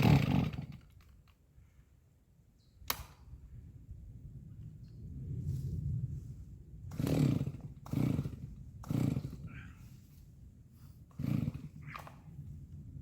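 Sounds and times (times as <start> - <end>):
chainsaw engine sputtering: 0.0 - 1.2, 6.9 - 9.6, 11.1 - 12.2.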